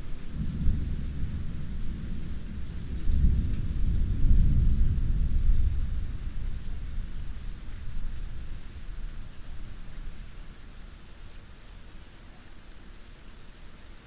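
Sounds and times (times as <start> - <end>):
rolling thunder: 0.0 - 10.7
steady rain: 0.0 - 14.0.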